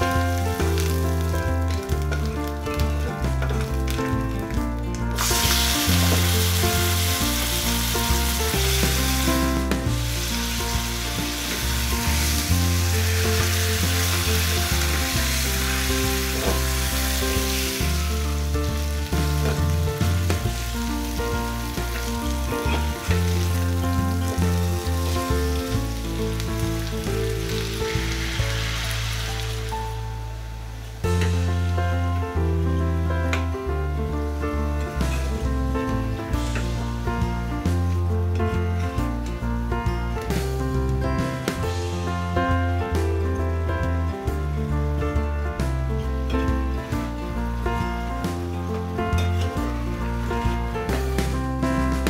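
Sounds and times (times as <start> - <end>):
food sizzling in hot oil: 0.0 - 32.1
soft background music: 0.0 - 52.0.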